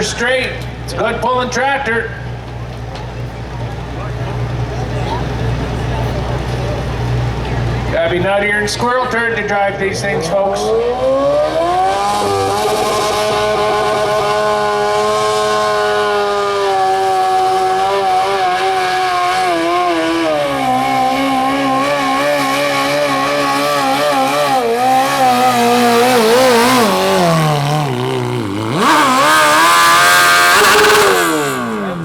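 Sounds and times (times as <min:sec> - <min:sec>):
lawn tractor engine revving hard: 0:00.0 - 0:32.0.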